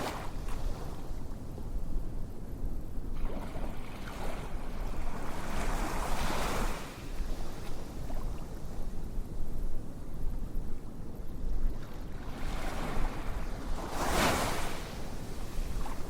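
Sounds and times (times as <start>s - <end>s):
rushing surf-like noise: 0.0s - 0.4s.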